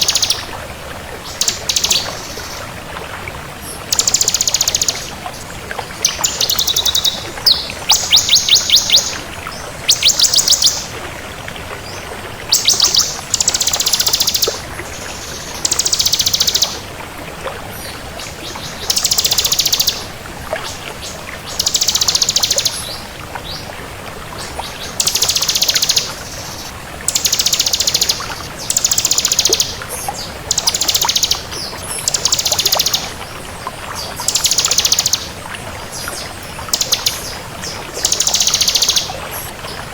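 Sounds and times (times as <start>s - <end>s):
bird singing trilled phrases: 0.0s - 0.5s, 1.3s - 2.6s, 3.9s - 5.1s, 6.0s - 9.2s, 9.9s - 10.9s, 12.5s - 14.6s, 15.2s - 16.8s, 18.6s - 20.1s, 21.5s - 23.6s, 24.7s - 33.2s, 34.3s - 35.4s, 36.6s - 39.5s.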